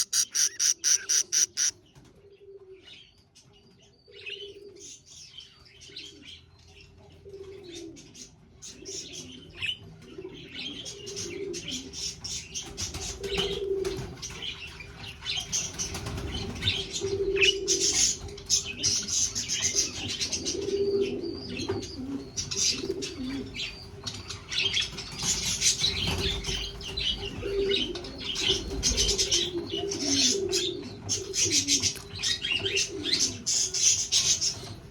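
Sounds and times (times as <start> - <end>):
budgerigars chirping: 0.0 - 1.7.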